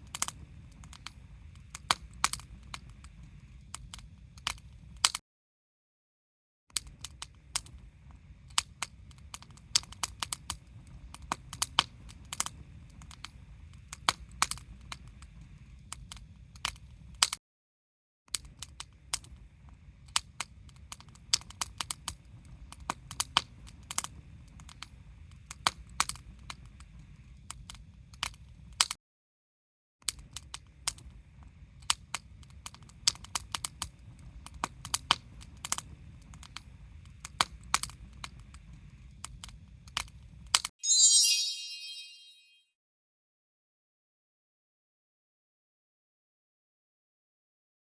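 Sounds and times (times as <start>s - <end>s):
sharp pops and snaps of fire: 0.0s - 5.2s, 6.7s - 17.4s, 31.8s - 40.1s.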